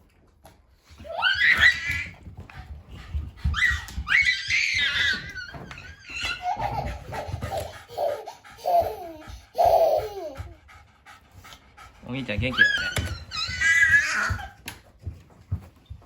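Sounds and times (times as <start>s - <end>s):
toddler shrieking and laughing: 1.0s - 2.3s, 3.4s - 10.6s, 12.5s - 14.6s.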